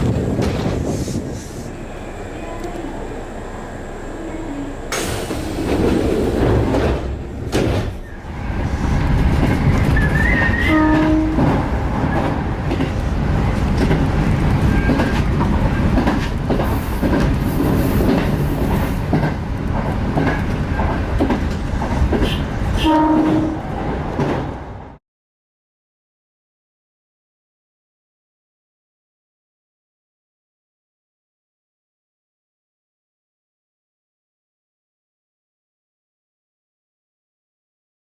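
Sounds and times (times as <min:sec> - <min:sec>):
electric train rumbling: 0:00.0 - 0:25.0
train horn toot: 0:10.3 - 0:11.6, 0:22.2 - 0:23.7.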